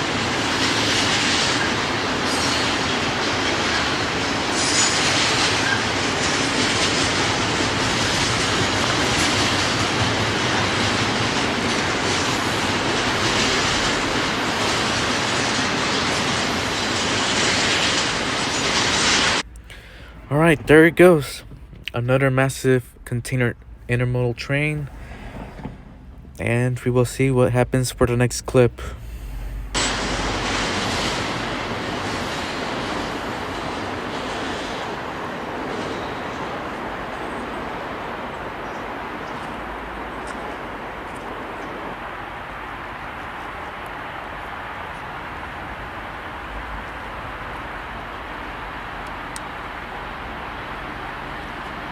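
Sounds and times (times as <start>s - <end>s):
wheels clickety-clack: 0.0s - 22.1s, 24.5s - 51.9s
freight train rolling past: 0.0s - 51.9s
rushing outdoor noise: 0.0s - 51.9s.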